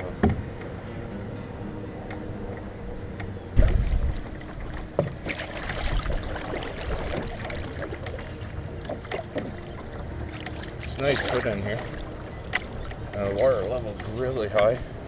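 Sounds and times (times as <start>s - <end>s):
water splashing: 3.6s - 15.0s.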